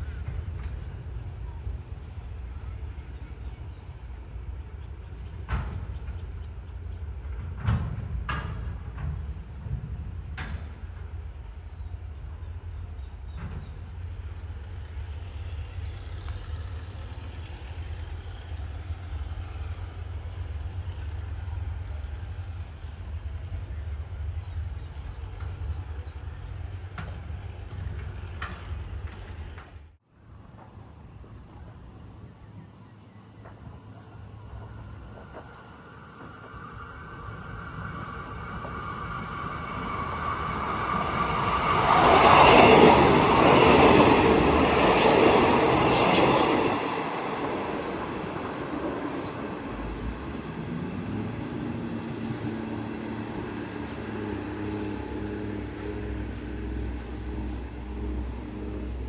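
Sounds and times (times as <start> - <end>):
train passing: 0.0 - 59.0
insects chirping: 30.1 - 59.0.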